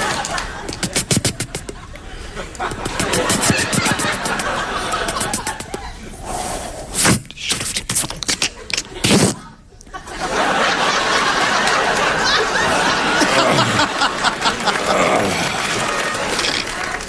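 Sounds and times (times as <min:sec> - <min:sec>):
studio audience laughing: 0:00.0 - 0:06.0, 0:09.8 - 0:17.0
vocal sound effects into microphone: 0:14.8 - 0:15.8.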